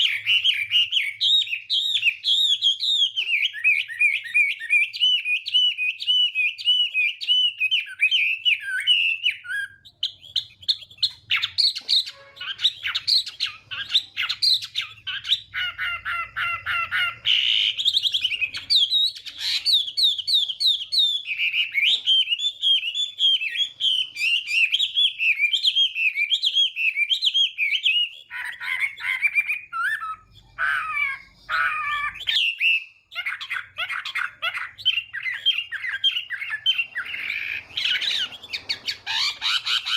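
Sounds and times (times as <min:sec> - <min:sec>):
songbird whistling and warbling: 0:00.0 - 0:39.9.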